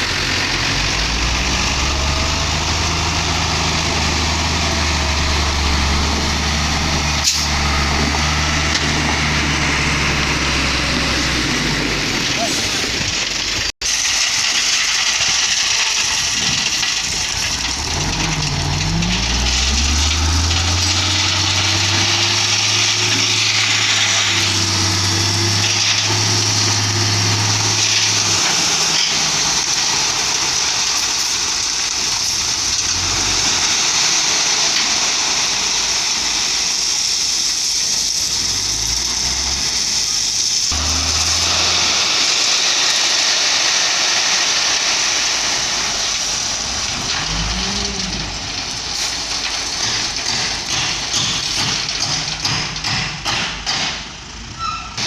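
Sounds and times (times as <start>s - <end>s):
diesel truck engine revving: 0.0s - 13.7s, 16.8s - 51.9s.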